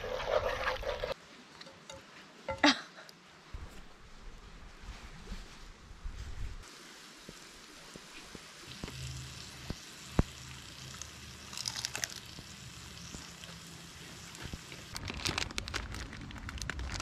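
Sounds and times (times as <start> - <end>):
meat sizzling in a pan: 6.7 - 15.0
crinkly rustling: 14.4 - 17.0.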